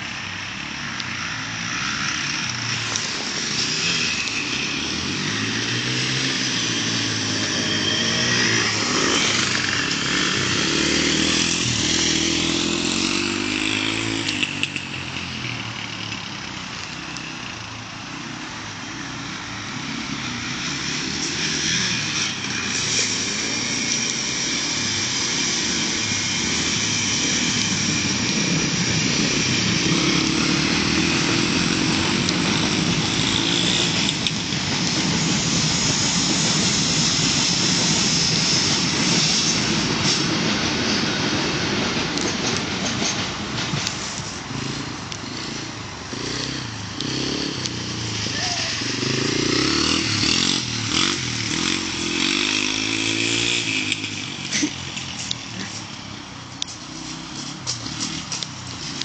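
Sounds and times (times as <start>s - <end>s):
motorbike engines revving: 0.0s - 59.0s.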